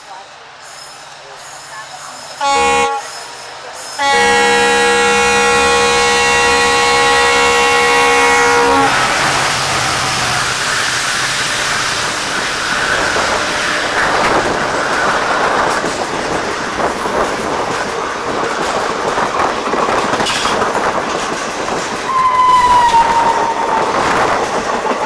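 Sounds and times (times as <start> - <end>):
diesel locomotive engine hum: 0.0 - 25.0
train coaches rushing past: 0.0 - 25.0
wheels clattering over rail joints: 9.4 - 25.0.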